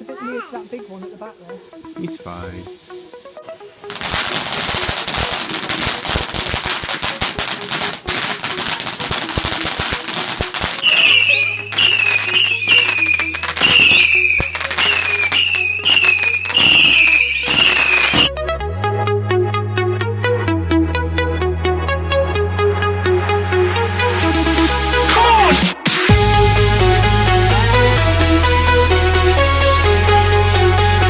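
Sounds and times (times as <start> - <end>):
fireworks crackling: 0.0 - 18.3
music with bass line: 0.8 - 31.0
fireworks whistling: 3.9 - 18.3.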